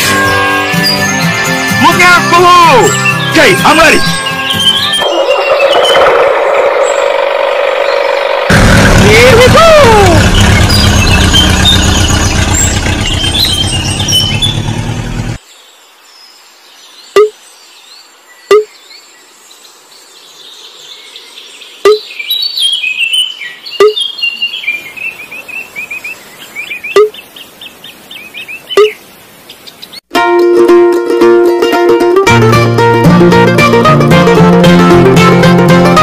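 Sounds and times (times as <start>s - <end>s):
birds chirping: 0.7s - 30.1s
engine running: 5.0s - 15.4s.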